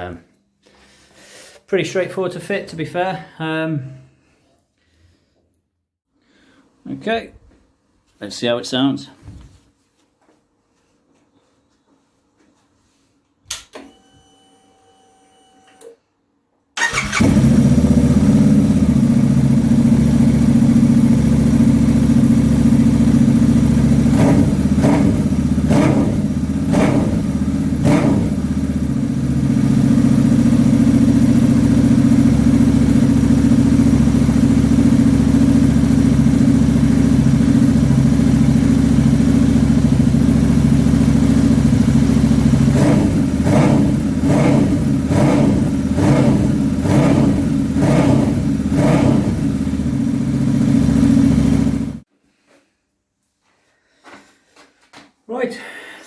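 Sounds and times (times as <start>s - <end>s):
motorcycle engine starting and idling: 16.8s - 52.1s
engine revving blips: 23.6s - 28.6s, 42.5s - 51.9s.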